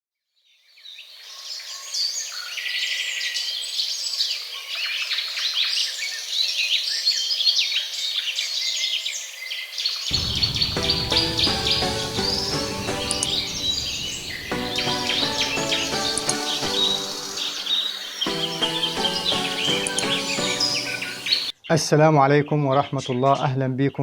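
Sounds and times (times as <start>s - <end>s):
music: 10.1s - 21.5s.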